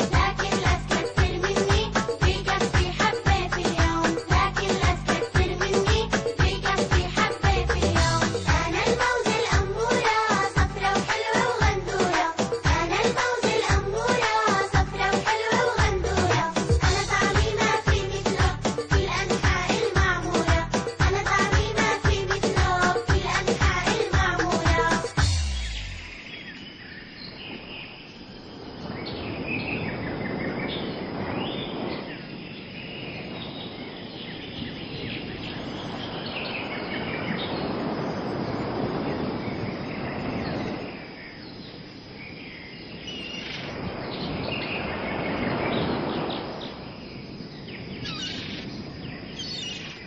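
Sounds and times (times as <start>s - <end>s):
broad rushing outdoor noise: 0.0s - 26.7s
birds chirping: 0.0s - 50.0s.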